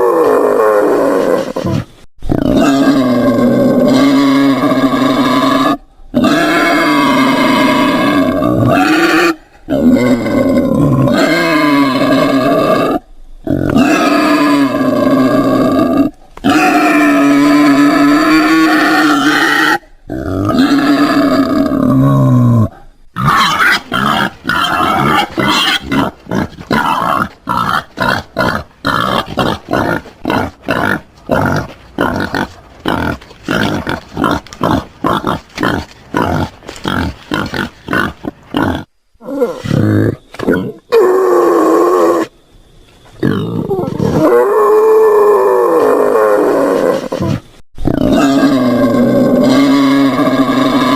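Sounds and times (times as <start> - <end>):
wild boar calling: 0.0 - 42.3, 43.2 - 50.9
wild boar grunting: 1.2 - 40.9.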